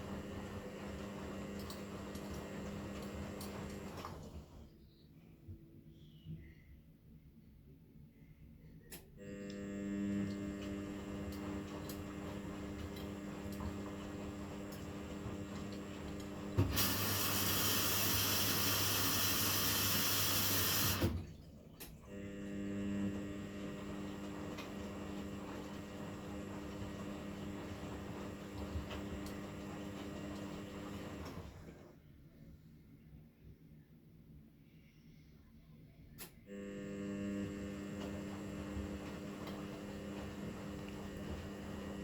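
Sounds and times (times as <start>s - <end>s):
washing machine motor hum: 0.0s - 4.8s, 9.2s - 32.0s, 36.5s - 42.0s.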